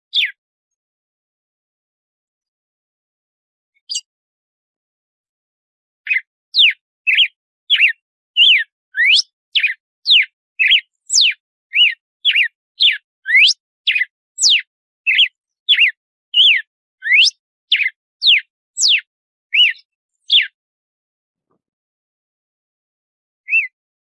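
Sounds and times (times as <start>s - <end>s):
bird whistling song: 0.0s - 0.4s, 3.8s - 4.1s, 6.1s - 20.6s, 23.4s - 23.8s.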